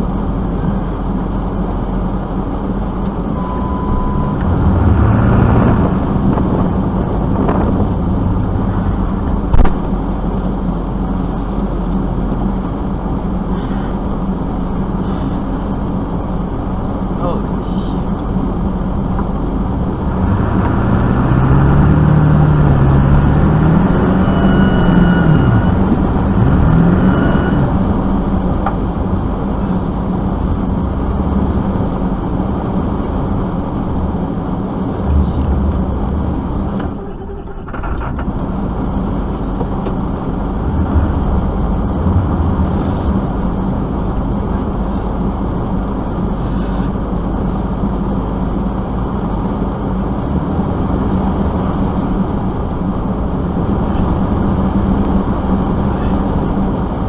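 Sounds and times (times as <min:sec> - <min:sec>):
vehicle engine revving: 0:02.8 - 0:10.5, 0:17.9 - 0:45.7.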